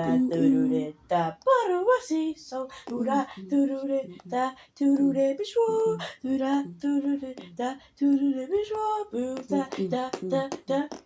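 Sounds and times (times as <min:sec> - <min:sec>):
person singing wordless syllables: 0:00.0 - 0:11.0.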